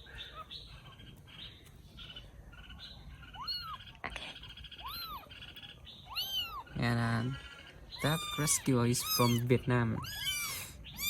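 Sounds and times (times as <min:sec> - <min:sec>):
kittens mewing: 0:02.5 - 0:11.0.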